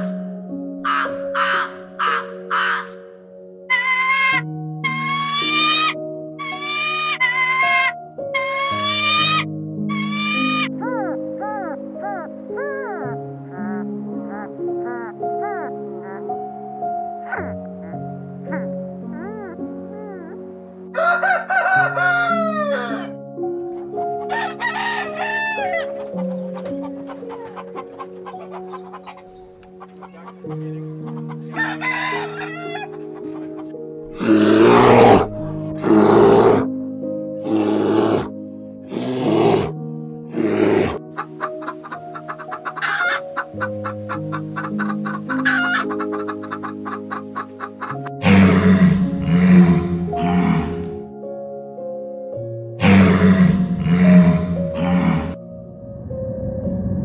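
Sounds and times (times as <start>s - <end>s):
background music with held notes: 0.0s - 57.0s
chicken squawks: 0.8s - 3.0s, 3.7s - 16.2s, 21.0s - 23.2s, 24.2s - 36.7s, 40.4s - 50.9s
rooster crowing: 0.9s - 2.9s, 20.9s - 23.2s, 24.2s - 26.0s, 31.2s - 33.0s, 42.6s - 43.5s, 45.4s - 46.7s
chickens clucking: 21.0s - 33.9s, 41.0s - 49.2s
loud growling: 34.1s - 36.7s, 37.4s - 41.0s, 48.2s - 50.9s, 52.8s - 55.4s.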